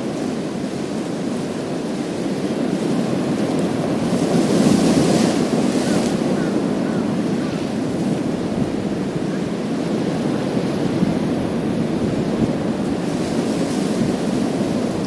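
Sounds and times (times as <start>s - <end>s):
waves washing over pebbles: 0.2s - 15.0s.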